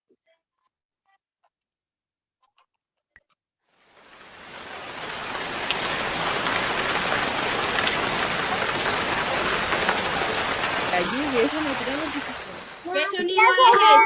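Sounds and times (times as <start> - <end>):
rain falling: 3.8 - 14.0
raindrop ticks: 4.2 - 12.9.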